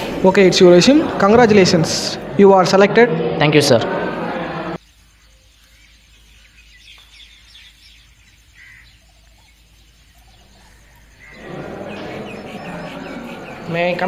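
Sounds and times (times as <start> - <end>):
background noise: 0.0 - 14.0
bird chirps: 4.8 - 14.0.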